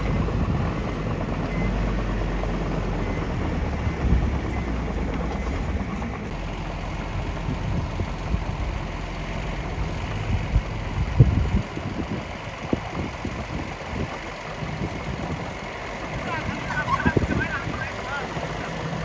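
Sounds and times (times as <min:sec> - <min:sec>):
small machine engine droning: 0:00.0 - 0:19.0.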